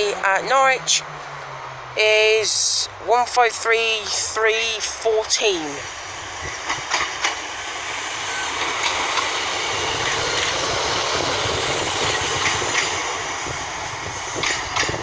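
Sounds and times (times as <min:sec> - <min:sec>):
diesel train running: 0:00.0 - 0:15.0
wheels clicking over rail joints: 0:05.8 - 0:15.0.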